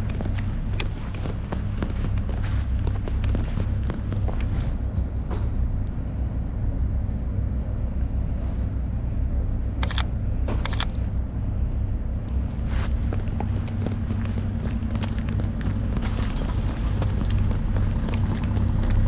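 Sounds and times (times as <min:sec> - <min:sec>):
low rumble of city street: 0:00.0 - 0:19.0
sharp clicks: 0:09.8 - 0:11.0.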